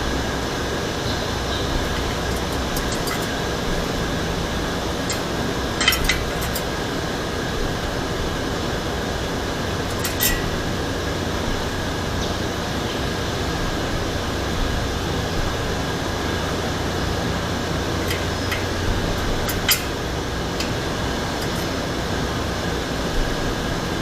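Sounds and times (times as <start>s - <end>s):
steady machine hum: 0.0s - 24.0s
tools clicking: 1.8s - 3.6s, 5.0s - 6.8s, 9.9s - 10.6s, 18.0s - 21.8s.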